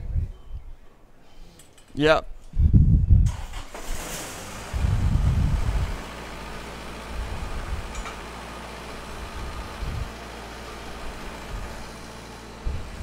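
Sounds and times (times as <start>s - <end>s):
low rumble: 3.9s - 8.1s
welding machine humming: 4.5s - 13.0s.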